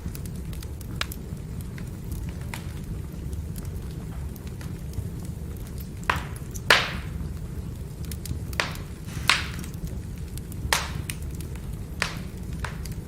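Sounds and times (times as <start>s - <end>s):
firewood crackling: 0.0s - 13.0s
low rumble of fire: 0.0s - 13.0s
sharp pops of firewood: 8.6s - 9.8s, 10.8s - 11.2s.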